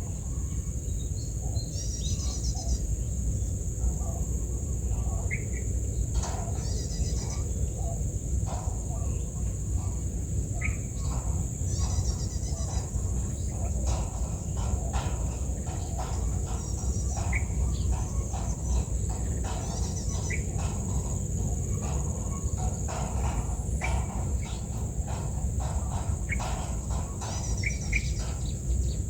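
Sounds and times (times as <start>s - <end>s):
bird chirps: 10.6s - 29.0s.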